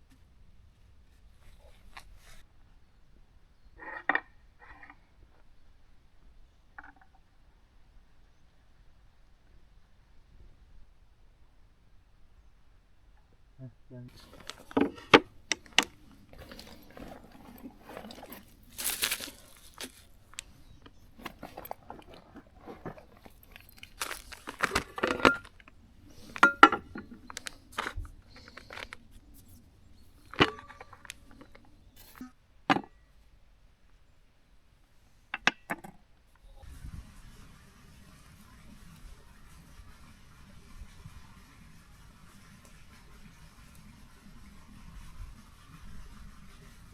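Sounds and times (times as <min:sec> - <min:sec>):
crunching and rustling: 0:14.1 - 0:32.3
handling clicks and knocks: 0:14.1 - 0:32.9.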